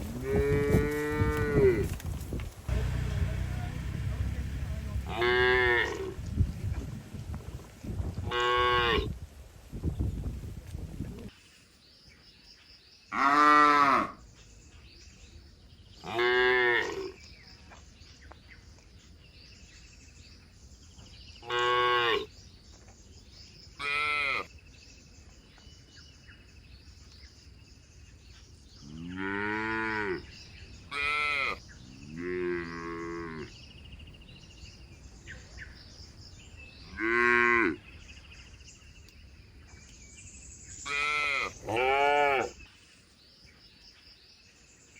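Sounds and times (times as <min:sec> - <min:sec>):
cattle mooing: 0:02.7 - 0:06.2.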